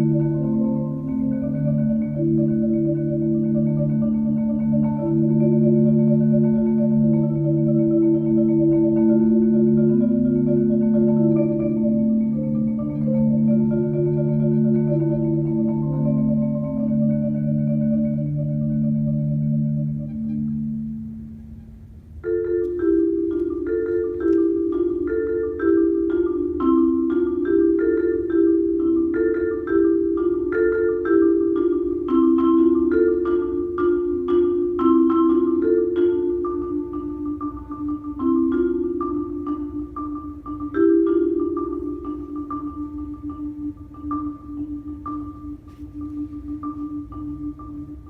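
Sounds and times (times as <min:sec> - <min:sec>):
marimba played with mallets: 0:00.0 - 0:48.0.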